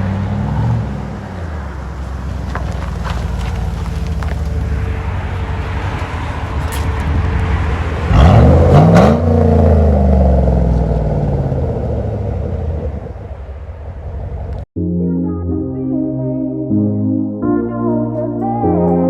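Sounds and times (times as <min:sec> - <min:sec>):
car exhaust rumbling and revving: 0:00.0 - 0:14.7.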